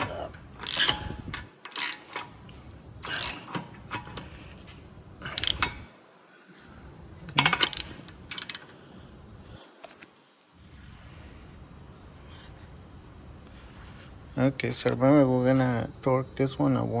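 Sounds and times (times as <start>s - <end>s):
metal tools clanking: 0.0s - 4.6s, 5.2s - 5.9s, 7.3s - 8.8s
ratchet clicking: 0.1s - 4.6s, 5.2s - 5.9s, 7.3s - 8.8s.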